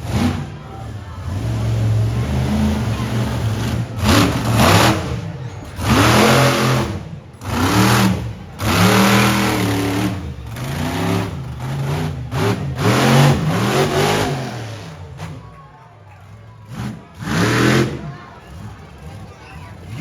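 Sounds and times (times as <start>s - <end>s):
exhaust blast: 0.0s - 15.7s
monster truck engine revving: 0.0s - 20.0s.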